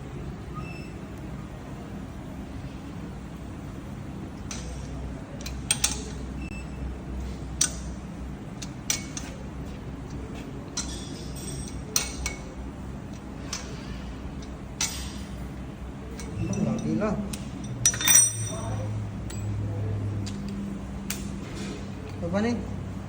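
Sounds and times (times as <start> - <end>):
low machine hum: 0.0 - 23.0
metal tools clinking: 10.8 - 12.5, 16.1 - 19.6.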